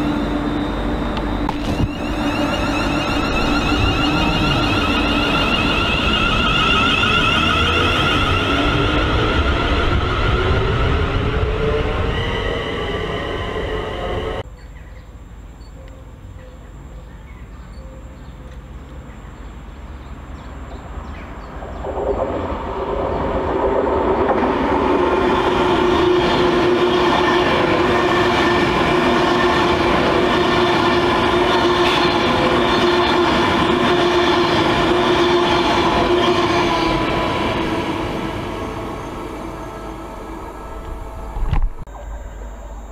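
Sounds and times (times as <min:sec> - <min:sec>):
electric train passing at speed: 0:00.0 - 0:14.5, 0:18.5 - 0:42.9
steady tonal hum: 0:00.0 - 0:14.5, 0:21.6 - 0:42.9
wheels rushing on rail: 0:00.0 - 0:14.5, 0:18.5 - 0:42.8.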